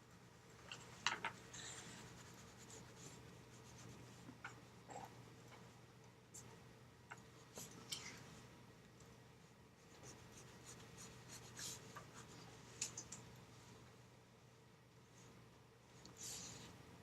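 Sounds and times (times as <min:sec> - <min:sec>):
pencil scratching on paper: 0:01.8 - 0:04.2, 0:09.8 - 0:12.4.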